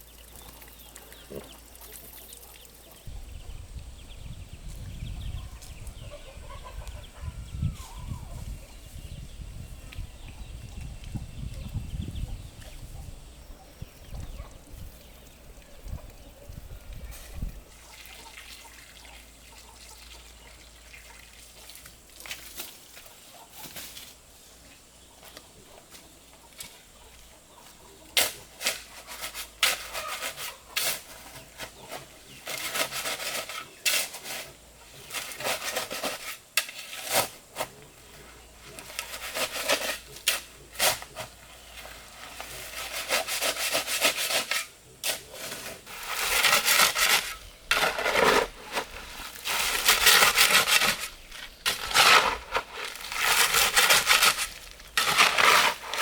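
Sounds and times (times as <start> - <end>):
rubbing and scraping strokes: 27.7 - 56.0.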